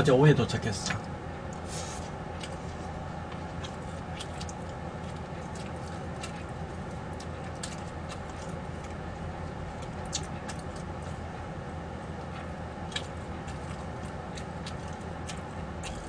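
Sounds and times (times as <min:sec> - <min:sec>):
steady low hum: 0:00.0 - 0:16.0
person chewing food: 0:01.5 - 0:16.0
mouth clicks and smacks: 0:10.0 - 0:10.8.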